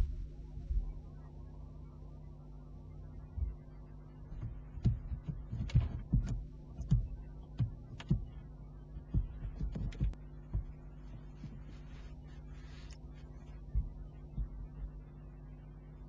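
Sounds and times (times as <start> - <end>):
electrical hum: 0.0 - 16.0
soft knocks and taps: 4.4 - 11.7.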